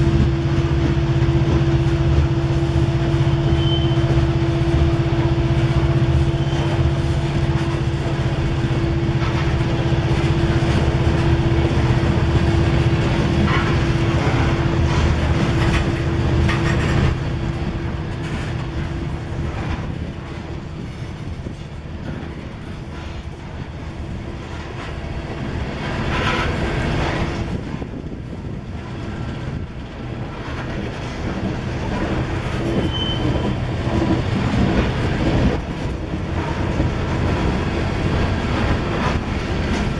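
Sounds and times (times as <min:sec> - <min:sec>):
diesel engine drone: 0:00.0 - 0:18.4
freight cars rumbling: 0:00.0 - 0:23.0, 0:25.8 - 0:39.9
train wheels clicking on rail joints: 0:00.0 - 0:39.9.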